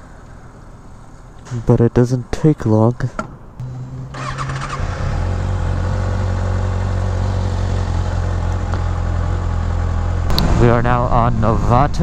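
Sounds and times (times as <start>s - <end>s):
motorcycle engine starting and running: 3.6s - 12.0s.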